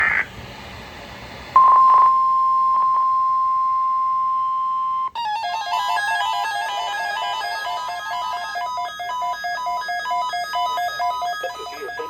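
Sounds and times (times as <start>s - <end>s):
garbled signal crackles: 1.6s - 3.1s
weather radios beeping: 1.6s - 5.2s, 6.8s - 12.0s
steady high alarm tone: 1.6s - 12.0s.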